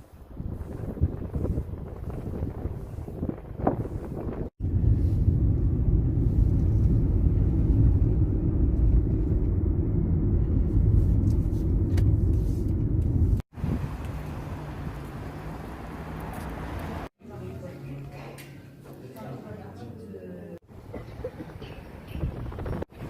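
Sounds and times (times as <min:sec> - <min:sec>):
car rumbling on road: 0:04.5 - 0:17.1.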